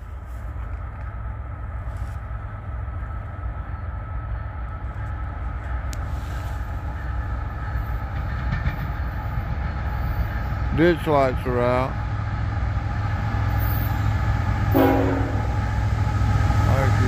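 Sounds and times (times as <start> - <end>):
distant diesel locomotive rumble: 0.0 - 17.0.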